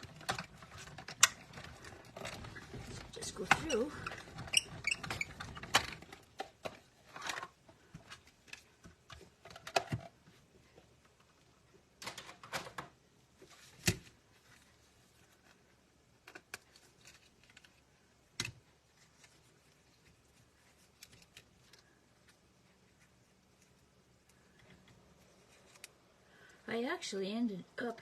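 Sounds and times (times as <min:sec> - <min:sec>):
paper rustling: 0:18.6 - 0:23.8.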